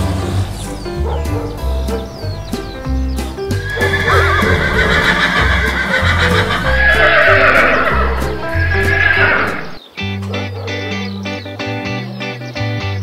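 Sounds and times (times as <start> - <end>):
background music with bass beat: 0.0 - 9.5
horse whinnying: 3.6 - 9.8.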